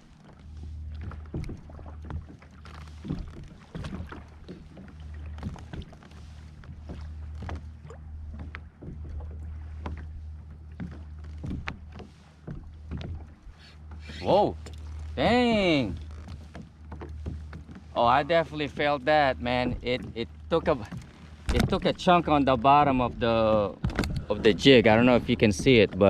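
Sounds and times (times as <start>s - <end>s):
small knocks and splashes: 0.0s - 15.2s, 15.9s - 18.0s, 19.6s - 22.1s
water slapping kayak hull: 0.0s - 26.0s.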